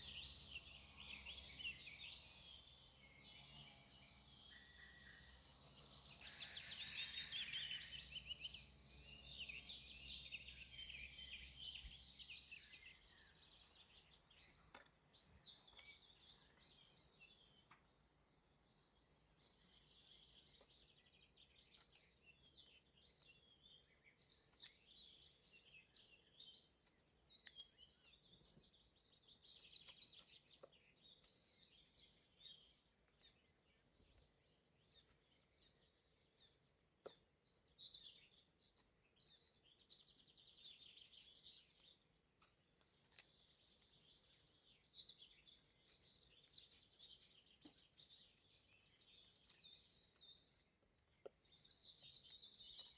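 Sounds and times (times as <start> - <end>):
small birds chirping and singing: 0.0 - 52.9.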